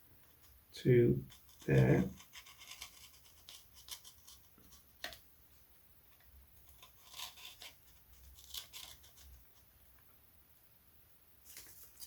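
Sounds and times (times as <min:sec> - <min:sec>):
blade scratching strokes: 0:01.3 - 0:04.6, 0:06.7 - 0:09.4.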